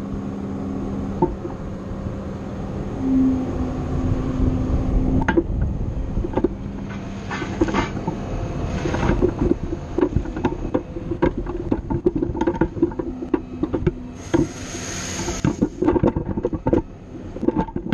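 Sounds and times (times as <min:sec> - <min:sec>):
loader engine running: 0:00.0 - 0:17.9
grapple knocks and clunks: 0:08.8 - 0:14.5, 0:15.3 - 0:17.9.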